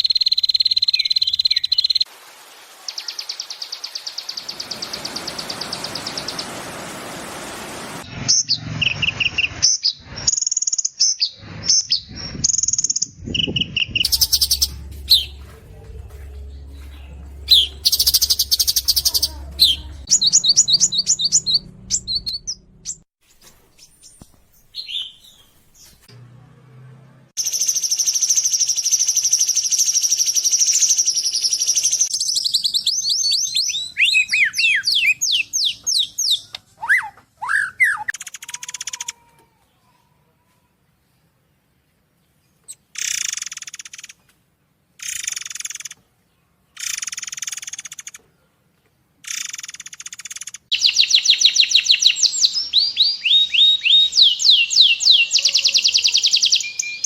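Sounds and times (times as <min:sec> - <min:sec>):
songbird trilling and whistling: 0:08.4 - 0:15.5, 0:17.5 - 0:23.0, 0:27.4 - 0:39.0, 0:49.2 - 0:57.0.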